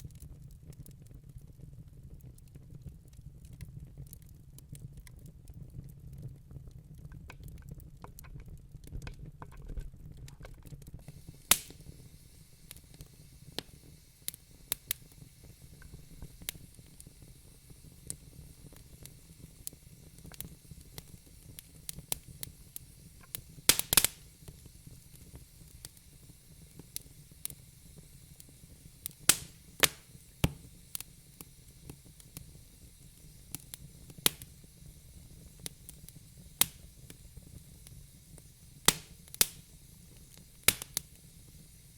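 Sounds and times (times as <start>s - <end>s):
fire crackling in fireplace: 0.0s - 41.9s
loud wood snaps: 11.5s - 11.8s, 23.7s - 24.2s, 29.3s - 30.6s, 38.9s - 39.6s.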